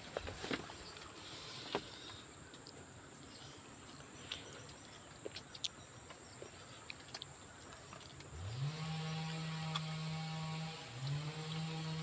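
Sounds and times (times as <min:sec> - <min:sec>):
motor starting and humming: 0:08.3 - 0:12.0.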